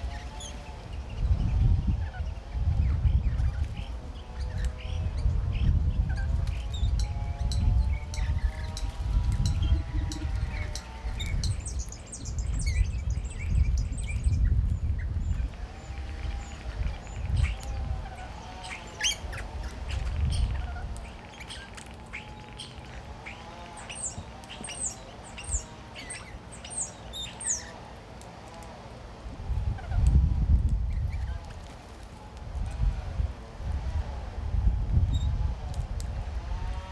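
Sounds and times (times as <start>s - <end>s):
low gusty rumble: 0.0s - 21.2s, 29.2s - 31.6s, 32.3s - 36.9s
birds squawking and chirping: 0.0s - 30.2s, 30.9s - 34.3s.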